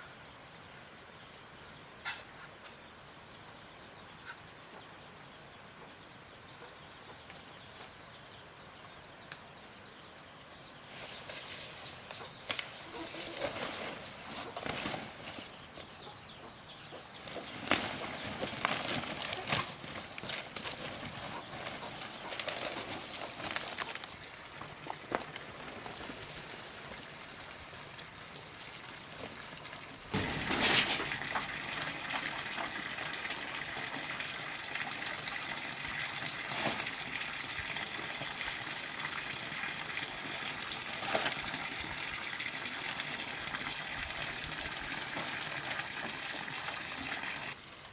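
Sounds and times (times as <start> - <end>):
water gushing: 23.0 - 47.6.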